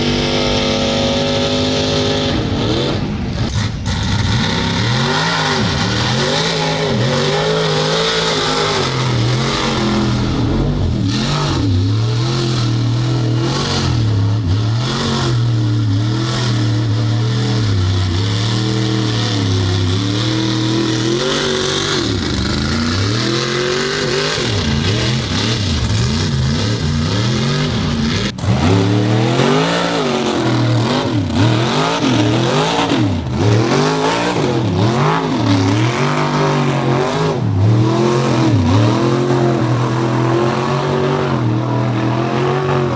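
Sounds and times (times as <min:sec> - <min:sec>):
truck engines revving: 0:00.0 - 0:42.9.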